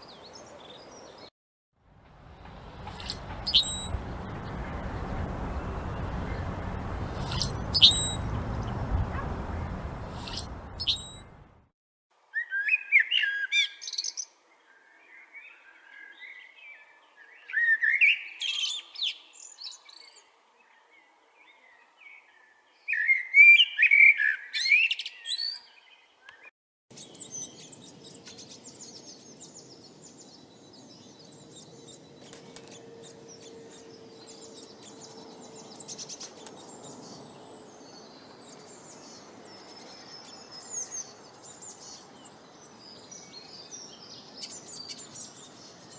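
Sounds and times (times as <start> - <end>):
small birds chirping: 0.0 - 1.3, 2.5 - 11.4, 12.4 - 20.3, 21.0 - 45.9
soft bird calls: 2.8 - 4.9, 5.6 - 11.4
songbird warbling: 7.2 - 9.2, 10.1 - 11.3.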